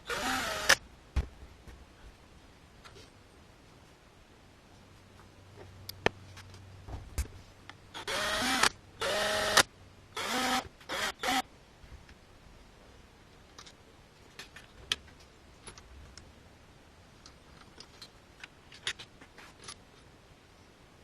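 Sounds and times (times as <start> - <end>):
electric power tool whirring: 0.0 - 0.8, 8.0 - 11.4.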